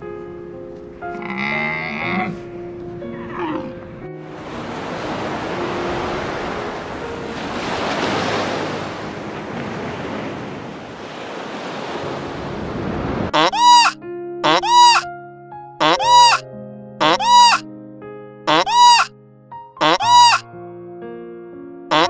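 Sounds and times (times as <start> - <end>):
animal bleating call: 1.1 - 2.4, 13.4 - 15.1, 15.8 - 16.4, 17.0 - 17.6, 18.5 - 19.1, 19.8 - 20.4
sea water lapping: 4.3 - 13.8.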